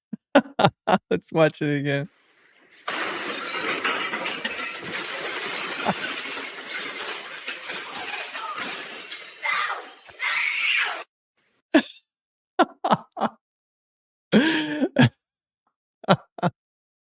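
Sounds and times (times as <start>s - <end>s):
crashing clattering noise: 2.1s - 11.1s.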